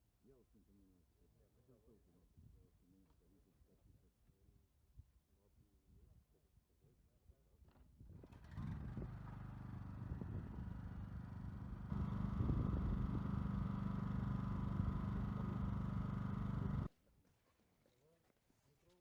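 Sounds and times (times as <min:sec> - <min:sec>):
machine motor droning: 0:08.4 - 0:16.9.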